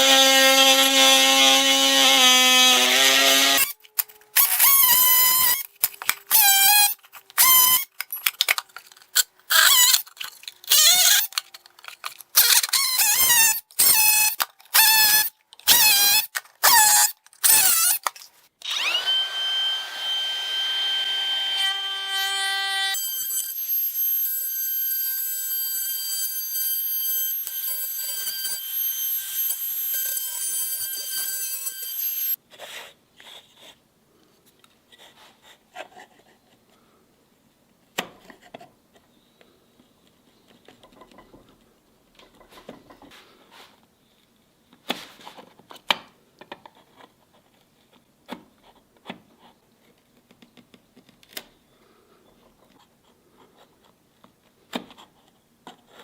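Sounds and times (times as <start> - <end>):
power tool motor whining: 18.6 - 32.4
taps and clicks of wood and tools: 49.9 - 51.5.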